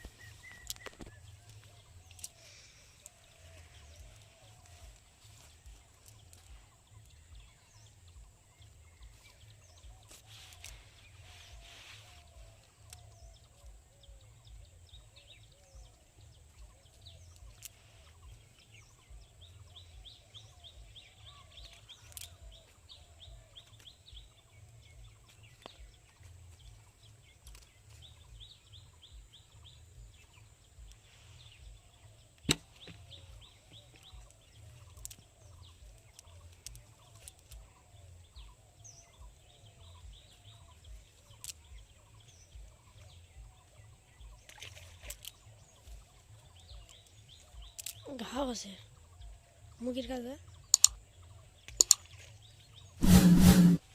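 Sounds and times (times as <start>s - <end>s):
birds chirping and trilling: 0.0s - 53.9s
sharp click: 50.7s - 51.0s, 51.8s - 52.0s.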